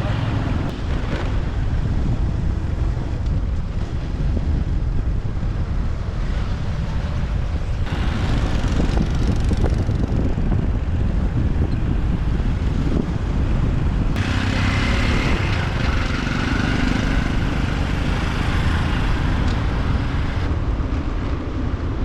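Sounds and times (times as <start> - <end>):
motorbike engine rumble: 0.0 - 22.0
road and traffic hiss: 0.0 - 22.0
wind buffeting microphone: 0.0 - 22.0.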